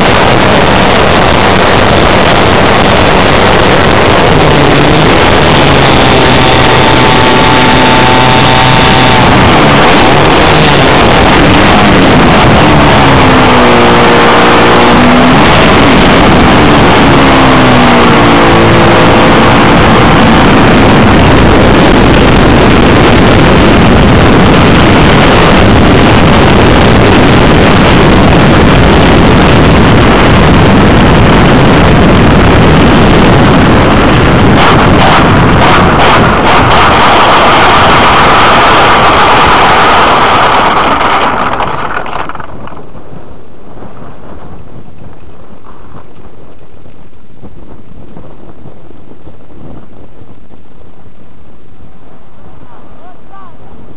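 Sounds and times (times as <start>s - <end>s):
model aeroplane engine running: 0.0s - 42.8s
wind noise: 0.0s - 53.9s.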